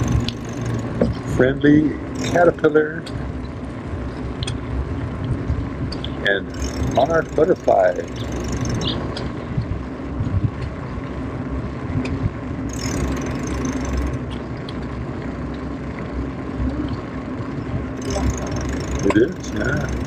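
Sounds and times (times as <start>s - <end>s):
wind rushing over microphone: 3.2s - 7.3s, 8.1s - 12.7s.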